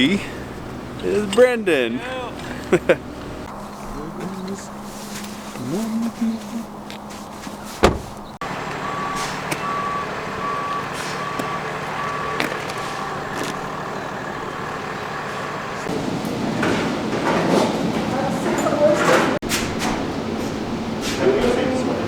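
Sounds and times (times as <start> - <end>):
engine hum: 0.0 - 22.0
sharp thump: 7.8 - 8.2
truck back-up alarm beeping: 8.4 - 16.1.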